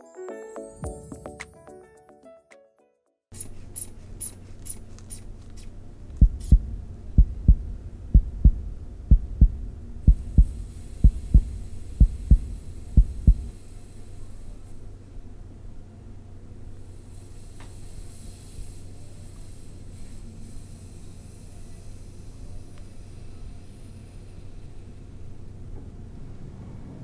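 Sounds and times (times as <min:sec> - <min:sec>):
faint steady hum: 0:03.4 - 0:27.0
heartbeat thumps through stethoscope: 0:06.2 - 0:13.5.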